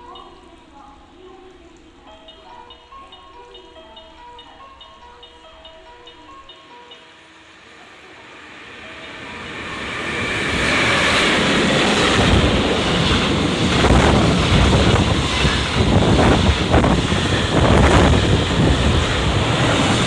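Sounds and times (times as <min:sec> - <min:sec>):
loud rushing noise with rumble: 0:08.4 - 0:20.0
wind buffeting microphone: 0:09.6 - 0:20.0.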